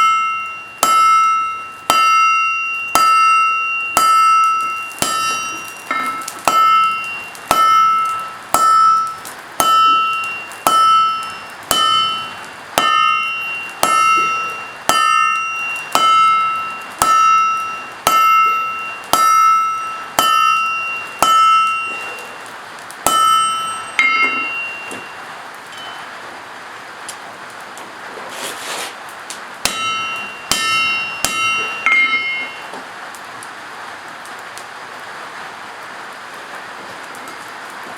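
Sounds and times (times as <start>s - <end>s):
hammer striking anvil: 0.0s - 25.2s, 29.6s - 32.8s.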